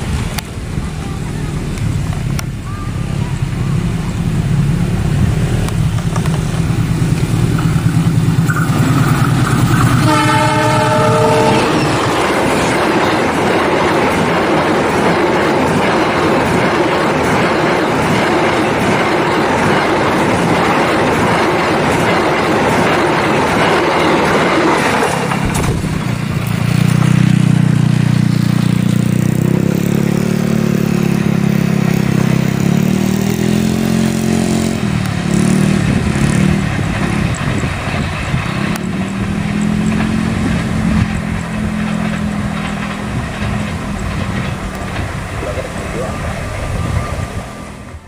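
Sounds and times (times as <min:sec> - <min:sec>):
low engine drone: 0:00.0 - 0:13.0, 0:24.9 - 0:48.0
train carriages rushing past: 0:00.0 - 0:48.0.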